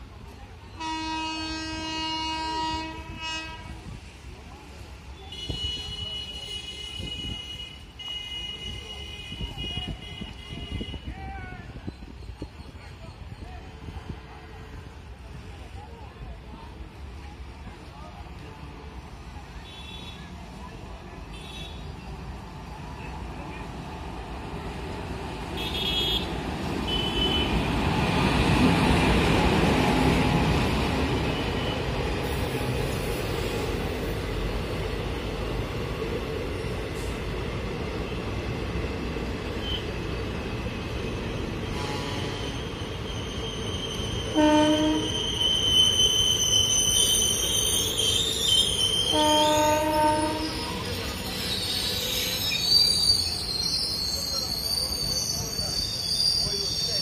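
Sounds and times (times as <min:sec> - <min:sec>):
train wheels rumbling on track: 0:00.0 - 0:57.0
locomotive horn: 0:00.8 - 0:03.9, 0:25.6 - 0:27.7, 0:41.7 - 0:42.5, 0:44.3 - 0:45.2, 0:49.1 - 0:50.9
brake squeal: 0:41.2 - 0:57.0.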